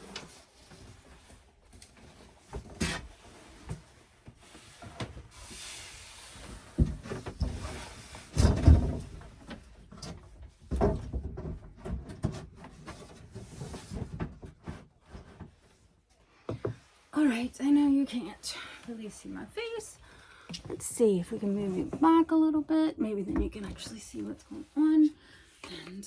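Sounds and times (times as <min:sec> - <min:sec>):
objects knocking and bumping: 0:06.5 - 0:15.6.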